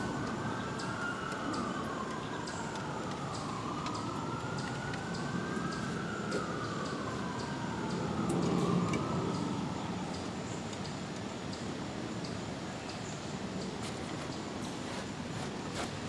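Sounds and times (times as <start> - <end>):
siren wailing: 0.1 - 10.2.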